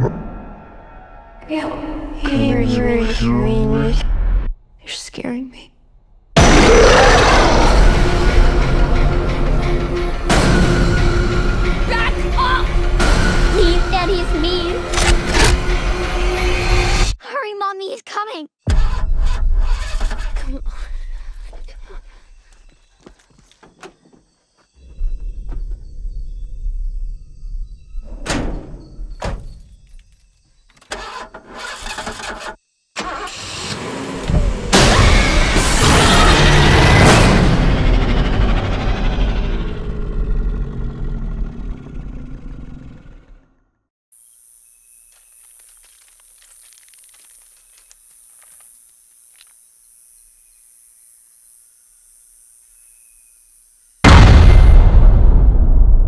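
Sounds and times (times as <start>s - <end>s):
rising build: 33.9s - 43.0s
low rumble: 35.8s - 43.1s, 54.1s - 56.0s
high-pitched insect drone: 44.2s - 54.0s
faint clicks and crackles: 45.1s - 49.6s.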